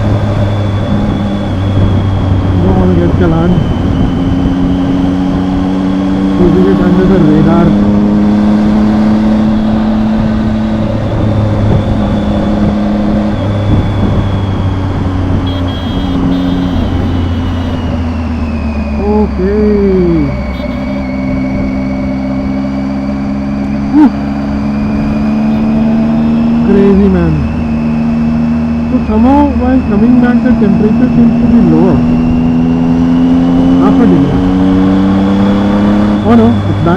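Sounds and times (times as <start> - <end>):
wind rushing over microphone: 0.0 - 18.9
motorcycle engine cruising: 0.0 - 36.9.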